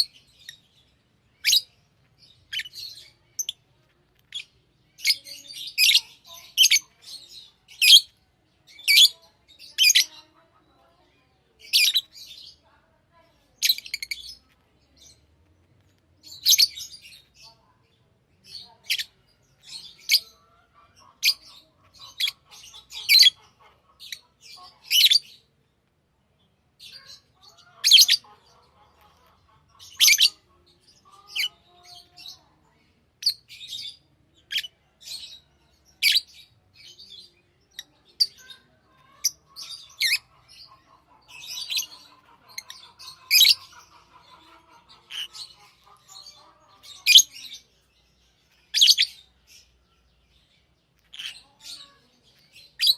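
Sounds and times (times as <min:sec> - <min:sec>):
lovebirds shrill chirps: 0:00.0 - 0:10.3, 0:13.6 - 0:15.2, 0:16.2 - 0:17.5, 0:26.8 - 0:32.5, 0:33.2 - 0:52.9
soft bird chattering: 0:00.0 - 0:52.9.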